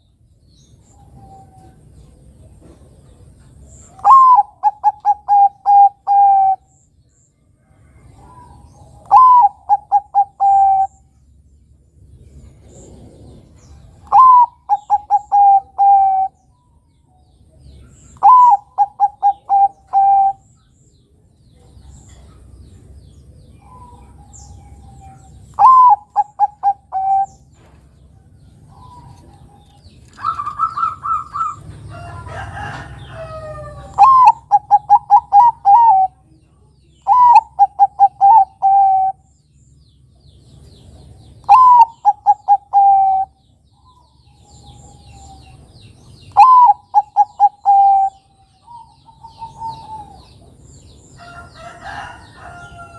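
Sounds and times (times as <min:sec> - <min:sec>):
dove cooing: 0:03.9 - 0:06.7, 0:08.2 - 0:11.1, 0:12.6 - 0:16.4, 0:18.0 - 0:20.5, 0:23.6 - 0:27.7, 0:28.7 - 0:36.3, 0:37.0 - 0:39.2, 0:41.4 - 0:45.6, 0:46.3 - 0:50.5.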